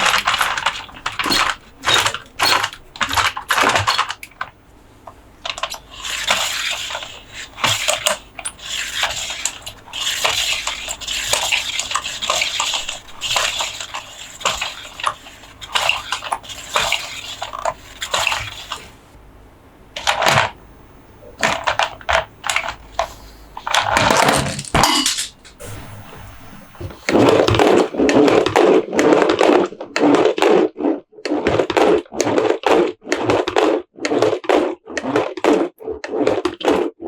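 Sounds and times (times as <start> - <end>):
plastic parts clicking: 0.0 - 18.9, 21.4 - 25.6.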